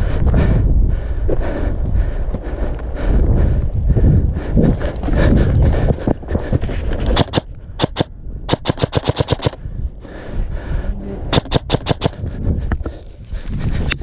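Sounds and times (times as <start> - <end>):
airsoft guns firing: 7.2 - 9.6, 11.3 - 12.2.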